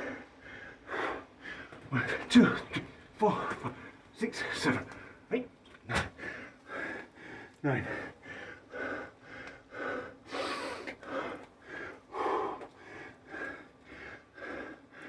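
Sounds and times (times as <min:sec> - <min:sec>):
man breathing hard: 0:00.0 - 0:01.9, 0:06.1 - 0:15.0.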